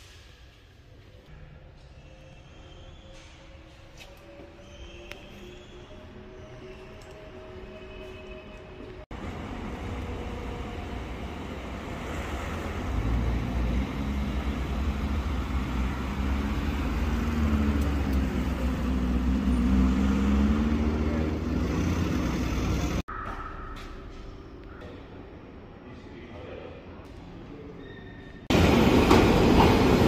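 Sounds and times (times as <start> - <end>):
car engine rumble passing: 9.1 - 23.1.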